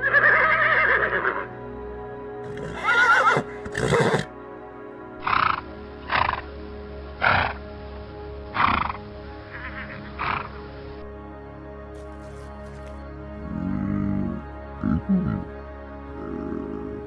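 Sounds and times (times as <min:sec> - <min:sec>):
harsh animal calls: 0:00.0 - 0:01.5, 0:02.4 - 0:04.3, 0:05.2 - 0:06.6, 0:07.2 - 0:07.7, 0:08.5 - 0:10.6
horse whinnying: 0:00.0 - 0:01.5, 0:02.4 - 0:04.3
background music: 0:00.0 - 0:17.0.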